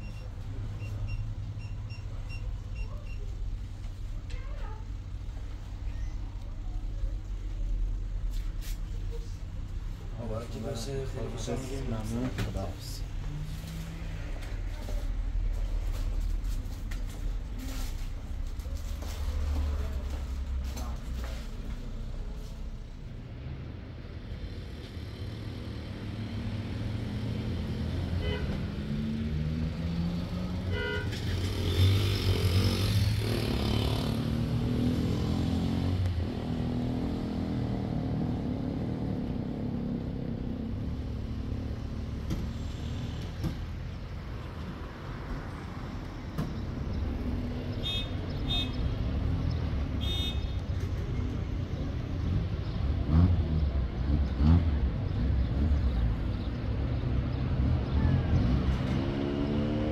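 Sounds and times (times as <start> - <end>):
short beeps: 0.0 - 3.3
motor vehicle rumbling: 0.0 - 59.9.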